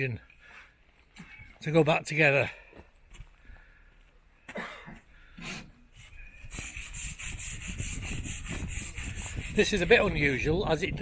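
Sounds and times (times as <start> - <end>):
rapid rhythmic scraping: 6.5 - 10.6.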